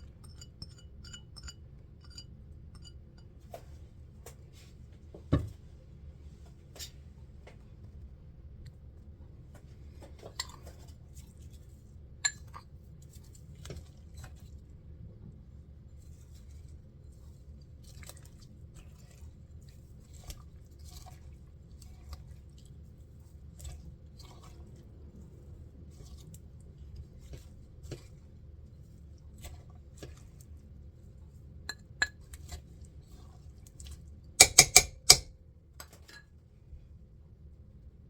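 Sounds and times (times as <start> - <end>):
dishes and utensils clicking: 0.0 - 2.9, 34.4 - 35.3
low steady hum: 0.0 - 38.0.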